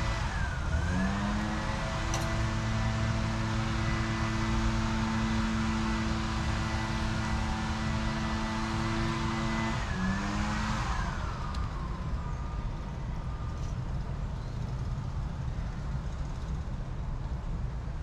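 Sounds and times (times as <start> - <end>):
motor vehicle passing by: 0.0 - 12.5.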